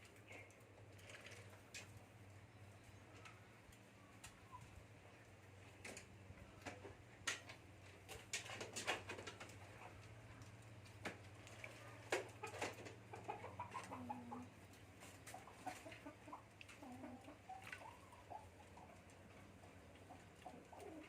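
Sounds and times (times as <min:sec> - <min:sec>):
birds calling softly: 0:02.0 - 0:05.5.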